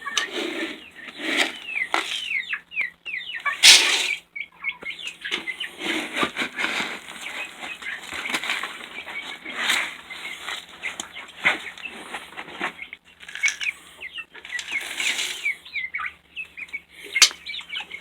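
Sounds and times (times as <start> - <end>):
rustling and clicks: 0.0 - 2.4
chickens chirping: 0.0 - 18.0.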